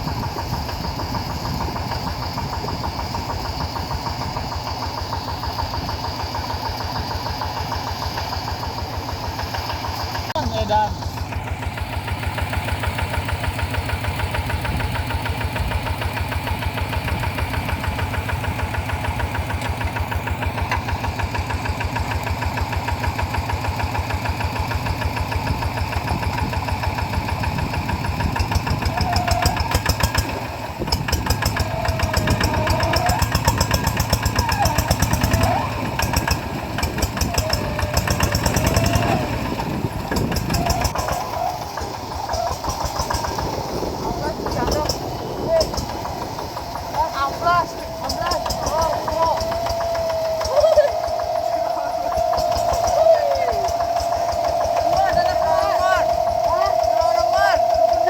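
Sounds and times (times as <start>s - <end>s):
diesel hand tractor engine running: 0.0s - 58.0s
wavering high-pitched sounds: 31.2s - 58.0s.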